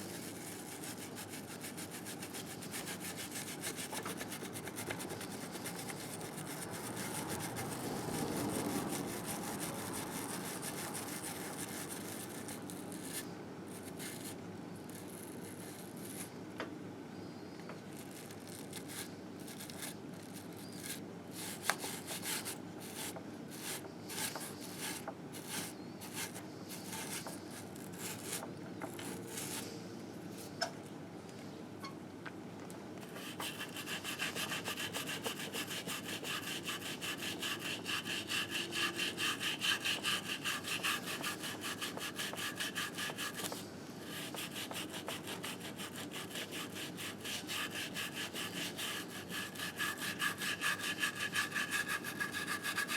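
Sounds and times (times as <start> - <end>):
hand scrubbing metal: 0.0 - 13.2, 19.6 - 28.4, 33.0 - 52.9.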